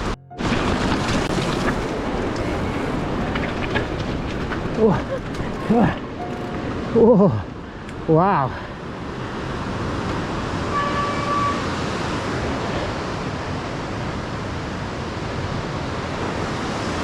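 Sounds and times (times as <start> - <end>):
thin high squeak: 0.3 - 7.1
bike tyres rolling over stones: 0.4 - 6.9
river rushing: 0.4 - 7.8.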